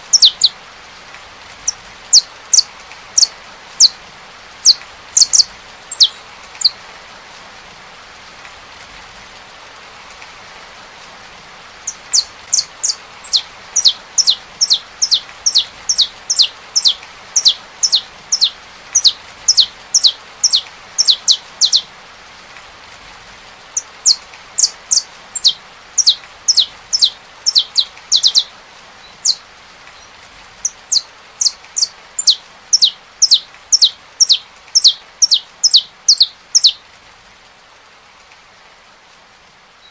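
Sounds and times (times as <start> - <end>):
finch singing: 0.0 - 0.6, 1.6 - 4.0, 4.6 - 6.8, 11.8 - 21.9, 23.8 - 36.8
steady rain hiss: 0.0 - 39.9.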